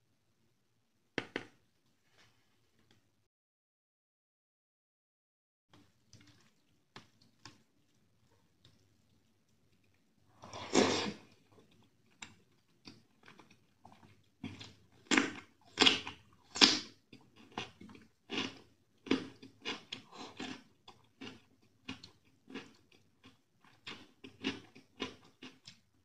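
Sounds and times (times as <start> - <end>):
chewing: 5.8 - 25.8.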